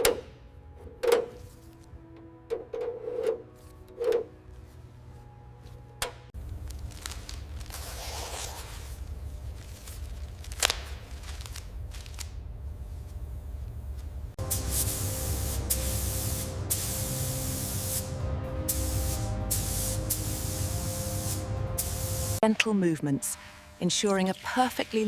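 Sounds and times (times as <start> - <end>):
steady spraying hiss: 14.4 - 22.4
low hum: 14.4 - 23.9.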